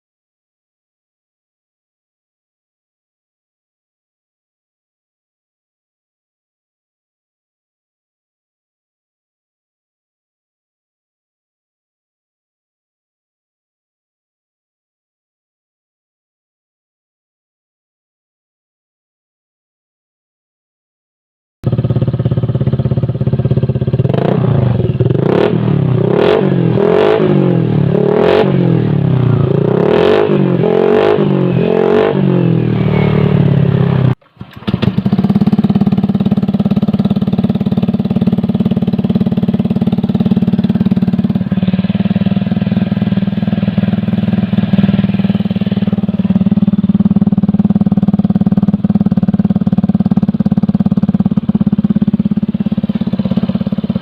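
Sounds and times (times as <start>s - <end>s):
motorcycle engine revving and idling: 21.6s - 54.0s.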